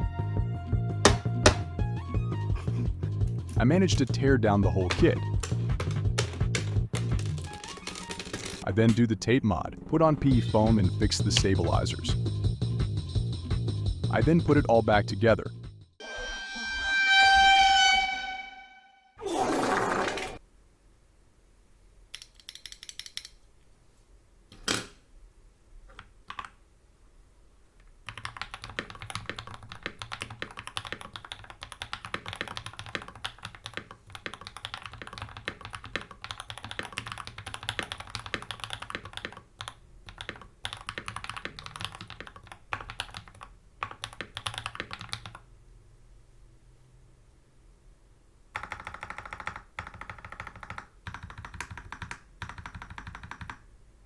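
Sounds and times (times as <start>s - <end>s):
mechanical keyboard typing: 22.1s - 23.3s, 26.0s - 26.6s, 28.1s - 45.4s, 48.5s - 53.6s.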